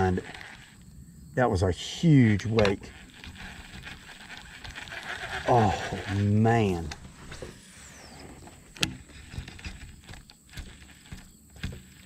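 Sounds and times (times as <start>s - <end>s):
fishing reel line whine: 0.0s - 1.3s, 2.0s - 12.0s
soft ticks and knocks: 8.5s - 12.0s.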